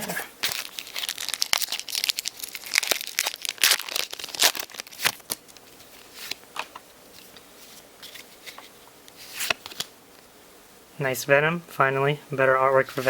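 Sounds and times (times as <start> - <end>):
wrapper crinkling and tearing: 0.1 - 6.4.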